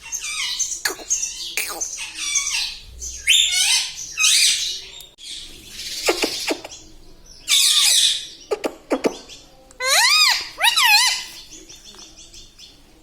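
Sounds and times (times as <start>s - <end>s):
parrot screeching: 0.0s - 4.6s, 9.8s - 11.3s.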